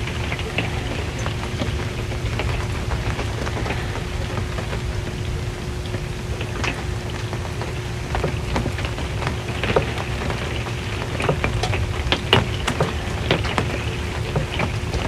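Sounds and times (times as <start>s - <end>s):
rain on a metal roof: 0.0s - 15.0s.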